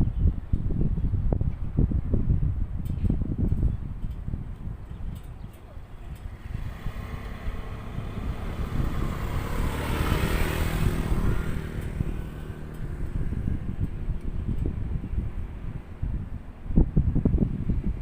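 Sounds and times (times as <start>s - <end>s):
wind rumbling on microphone: 0.0s - 18.0s
motor vehicle passing by: 5.5s - 18.0s.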